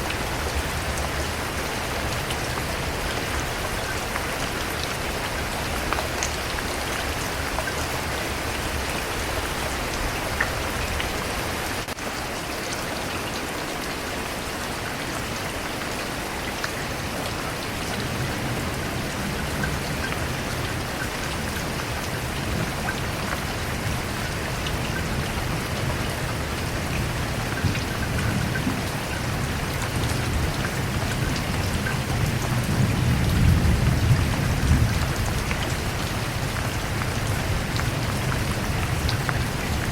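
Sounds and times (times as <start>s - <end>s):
heavy rain pattering: 0.0s - 39.9s
low rumble of thunder: 18.0s - 39.9s.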